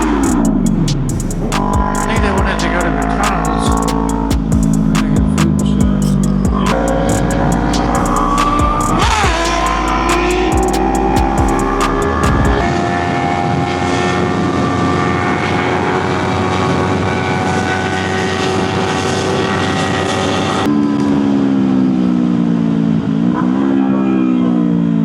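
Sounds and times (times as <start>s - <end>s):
motorcycle engine: 0.0s - 25.0s.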